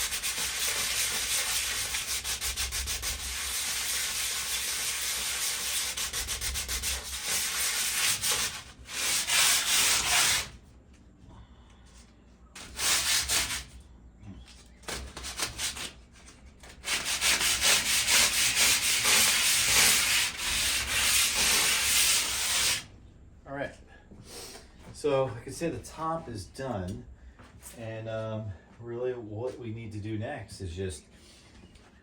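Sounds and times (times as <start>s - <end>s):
sandpaper rubbing on metal: 0.0s - 10.6s, 12.6s - 13.7s, 14.9s - 16.0s, 16.7s - 22.8s.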